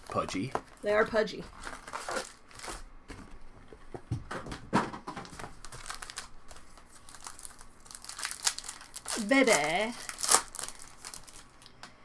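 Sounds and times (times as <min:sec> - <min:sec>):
wrappers crinkling: 0:00.0 - 0:02.9, 0:05.2 - 0:11.9.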